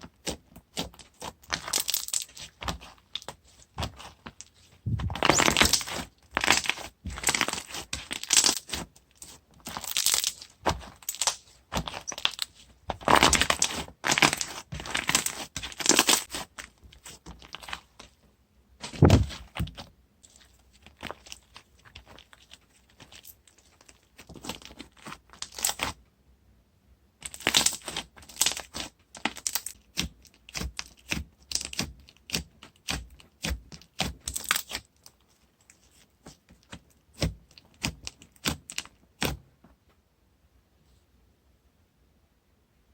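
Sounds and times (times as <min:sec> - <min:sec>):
sticky slime crackling and popping: 0:00.1 - 0:17.9, 0:27.2 - 0:35.2
heavy knock: 0:04.9 - 0:05.2, 0:19.0 - 0:19.3.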